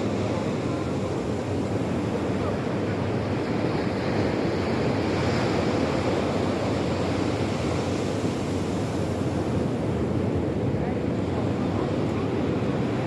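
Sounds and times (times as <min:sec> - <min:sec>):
waves rushing: 0:00.0 - 0:13.0.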